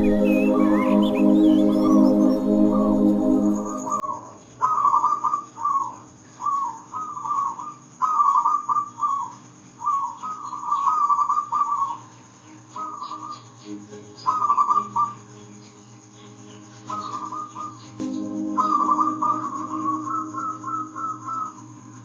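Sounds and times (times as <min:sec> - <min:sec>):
dove cooing: 0:18.4 - 0:21.6.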